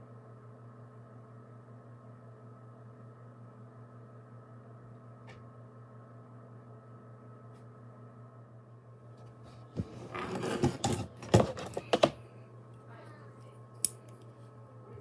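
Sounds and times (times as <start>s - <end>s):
clicks and clattering: 9.8s - 12.2s.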